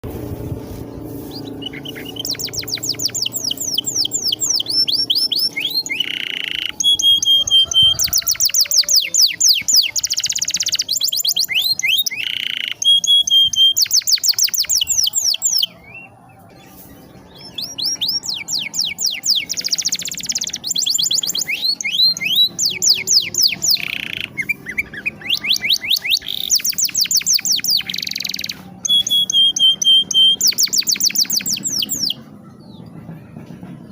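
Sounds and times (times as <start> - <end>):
canary singing trills: 0.7 - 32.9.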